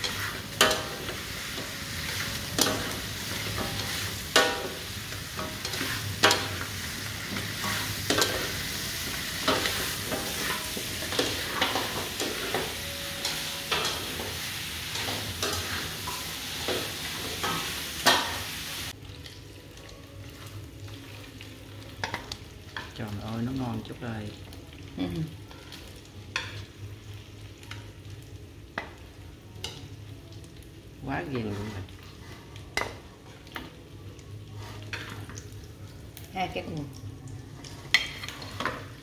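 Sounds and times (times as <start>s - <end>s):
chicken sizzling in a wok: 0.0s - 39.0s
utensils knocking and scraping pan: 9.4s - 18.4s.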